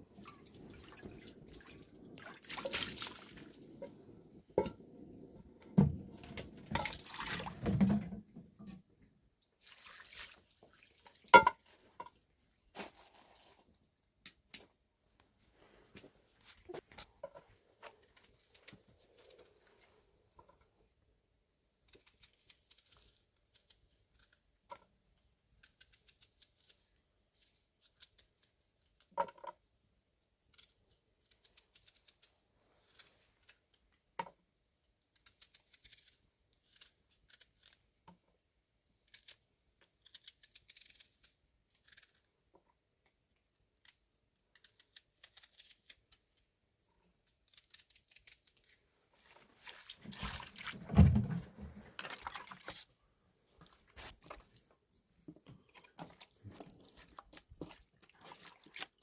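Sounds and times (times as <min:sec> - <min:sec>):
small crisp clicks and snips: 0:14.2 - 0:14.8, 0:21.8 - 0:29.2, 0:30.4 - 0:34.2, 0:35.0 - 0:38.2, 0:39.0 - 0:46.5, 0:47.3 - 0:48.8
knocks and rustling: 0:50.0 - 0:52.3.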